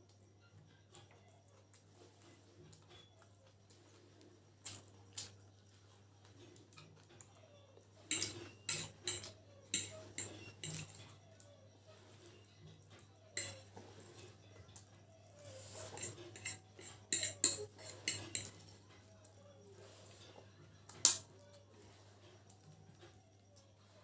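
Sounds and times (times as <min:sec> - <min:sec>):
utensils clinking on a plate: 0:07.9 - 0:11.2, 0:13.0 - 0:14.4, 0:15.4 - 0:19.1.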